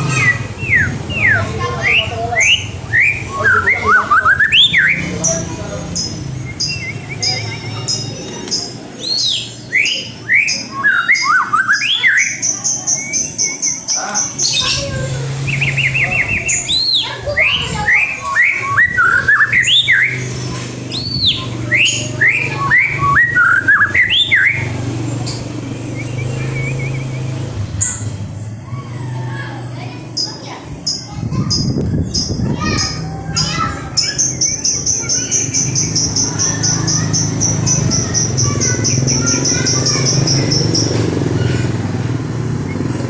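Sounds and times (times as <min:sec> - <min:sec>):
bird singing whistles and trills: 0:00.0 - 0:05.2, 0:06.0 - 0:28.1.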